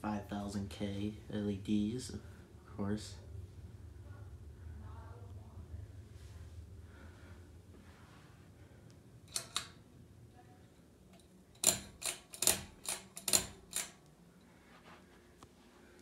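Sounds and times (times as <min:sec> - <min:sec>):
fan pull-chain switch clicking: 0:09.3 - 0:09.8, 0:11.1 - 0:14.1.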